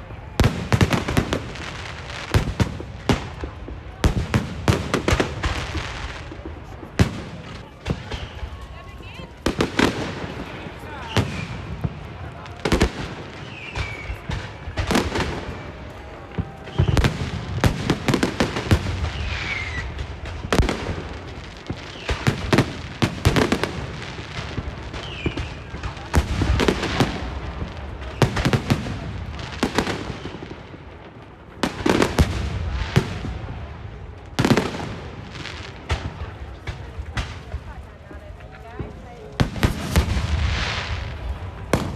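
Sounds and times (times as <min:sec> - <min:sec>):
fireworks and firecrackers banging: 0:00.0 - 0:41.9.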